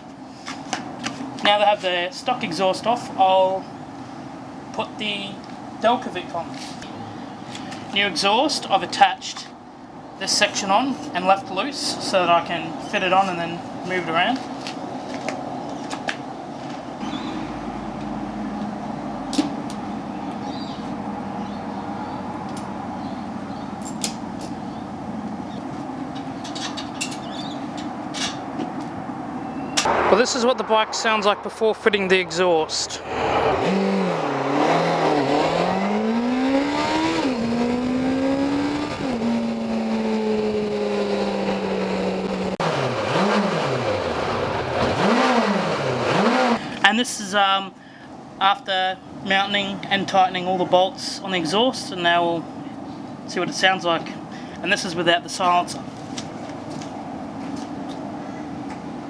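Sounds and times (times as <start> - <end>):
steady low hum: 14.8 - 39.8
metal exhaust clinking: 17.0 - 25.5
motorcycle engine revving: 17.0 - 26.0, 29.9 - 46.6.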